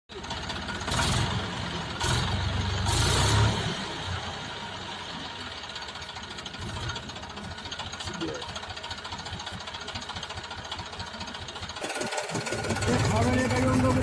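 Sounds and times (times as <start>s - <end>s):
tractor diesel engine running: 0.1s - 14.0s.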